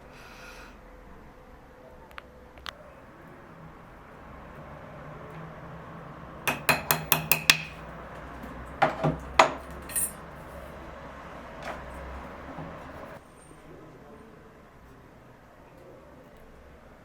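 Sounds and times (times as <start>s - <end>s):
tool tapping hard surface: 6.5s - 7.9s, 8.8s - 10.2s.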